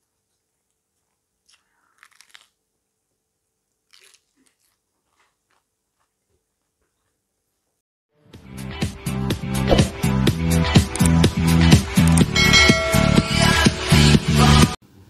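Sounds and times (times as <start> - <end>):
lettuce being bitten and chewed: 0.0 - 2.7, 3.7 - 7.2.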